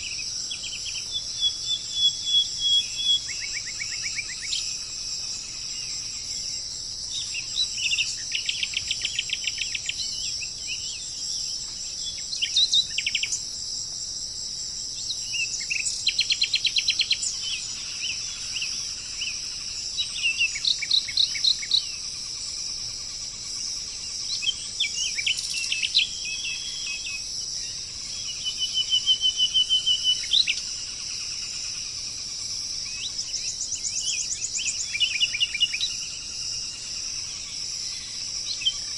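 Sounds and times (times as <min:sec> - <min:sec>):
birds chirping and trilling: 0:00.0 - 0:13.5, 0:14.9 - 0:38.9
insects droning: 0:00.0 - 0:38.9.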